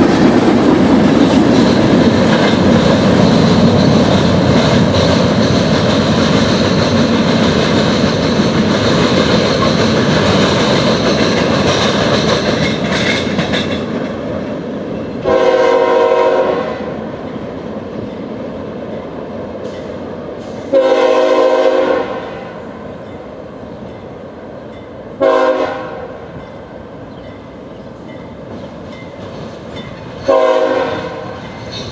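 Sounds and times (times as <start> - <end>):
train wheel clatter: 0.0 - 15.6, 26.4 - 31.9
locomotive air horn blasts: 15.2 - 17.0, 20.6 - 22.7, 25.2 - 26.2, 30.3 - 31.4.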